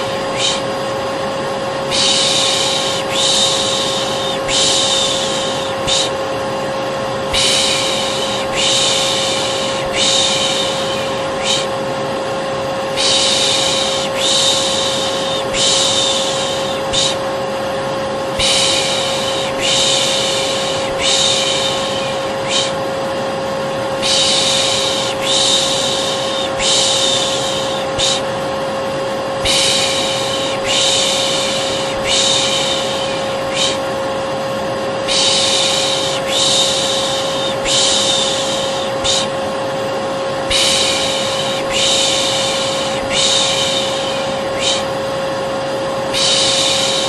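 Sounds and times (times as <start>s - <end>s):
person shushing: 0.0s - 0.8s, 1.9s - 6.3s, 7.3s - 11.8s, 12.9s - 17.3s, 18.3s - 22.9s, 24.0s - 28.4s, 29.4s - 34.0s, 35.0s - 39.5s, 40.4s - 45.1s, 46.1s - 47.0s
vacuum cleaner motor drone: 0.0s - 47.0s.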